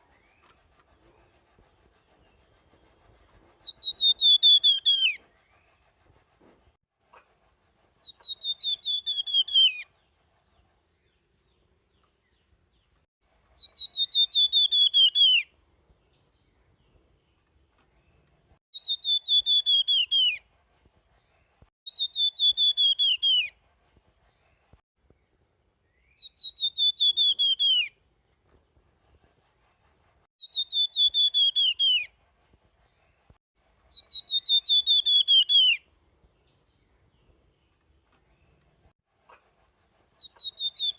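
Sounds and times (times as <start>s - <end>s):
songbird whistling descending notes: 3.6s - 5.6s, 8.0s - 9.9s, 13.6s - 15.6s, 18.7s - 20.4s, 21.9s - 23.6s, 25.9s - 28.0s, 30.4s - 32.2s, 33.9s - 35.9s, 40.2s - 40.9s.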